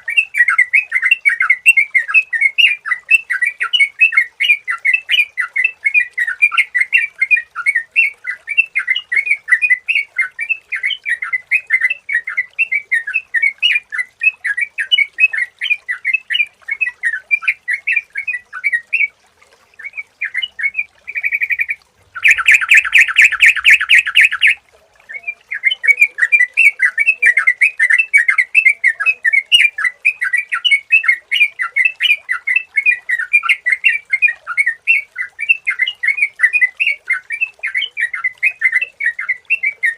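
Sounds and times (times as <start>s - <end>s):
bird chirping notes: 19.8s - 31.1s.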